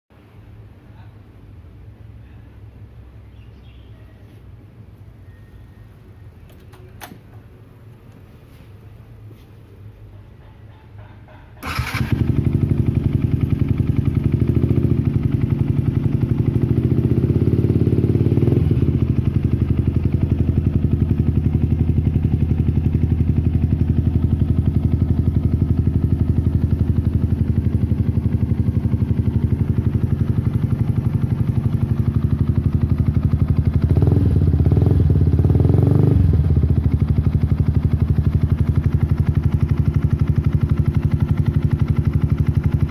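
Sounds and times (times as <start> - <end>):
motorcycle engine idling: 10.0 - 42.9.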